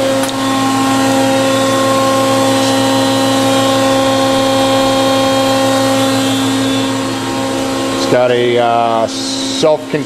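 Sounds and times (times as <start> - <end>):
electric machinery hum: 0.0 - 10.0.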